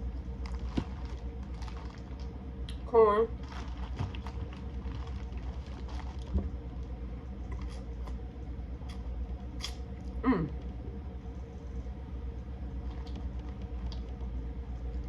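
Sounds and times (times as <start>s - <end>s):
low steady hum: 0.0s - 15.0s
person humming mm: 10.2s - 10.6s.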